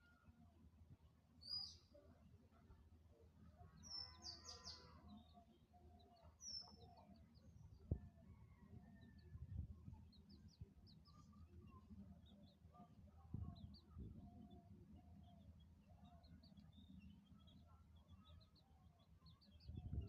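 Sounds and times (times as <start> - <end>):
chicks peeping: 13.3 - 20.0.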